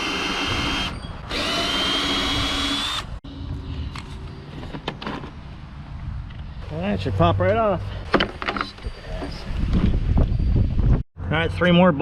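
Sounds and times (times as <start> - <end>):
power drill motor whining: 0.0 - 3.2.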